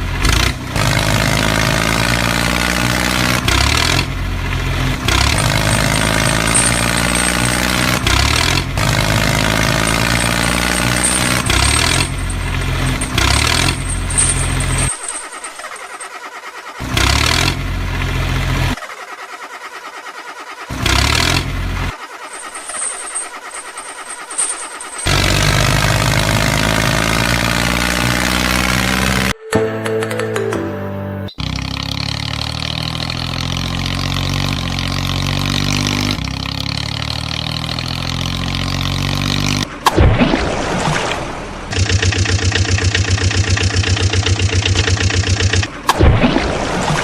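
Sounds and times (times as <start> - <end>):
tractor engine chugging and surging: 0.0 - 30.5, 31.3 - 40.2, 41.3 - 46.2.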